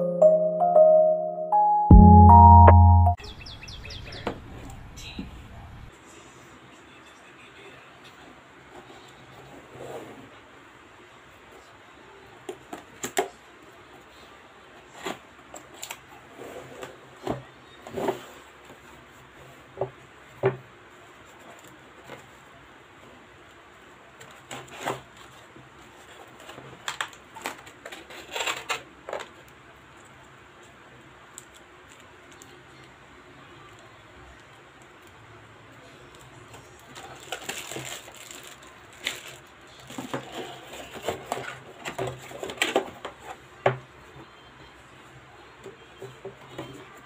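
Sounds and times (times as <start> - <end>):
plastic bag crinkling: 36.8 - 40.3.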